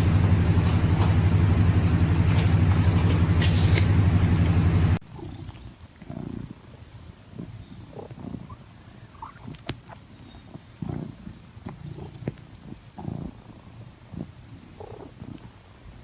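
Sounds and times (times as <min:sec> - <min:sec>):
loud low drone: 0:00.0 - 0:05.0
cat purring: 0:05.0 - 0:16.0.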